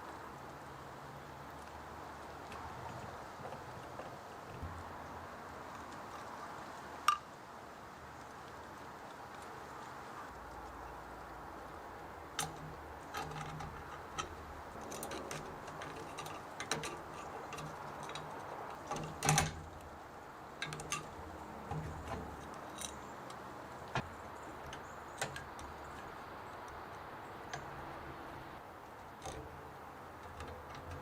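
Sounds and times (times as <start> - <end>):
metal parts and tools clinking: 12.4 - 26.2.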